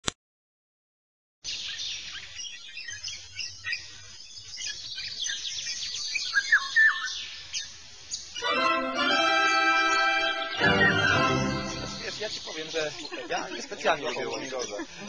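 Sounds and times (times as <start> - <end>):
birds chirping: 1.4 - 15.0
whistled bird notes: 1.5 - 8.5, 9.3 - 13.2.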